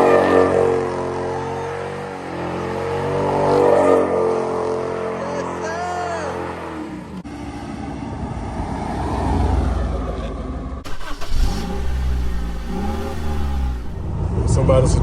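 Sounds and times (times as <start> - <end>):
engine revving: 0.0 - 7.3, 10.8 - 15.0
car engine rumble: 0.0 - 15.0.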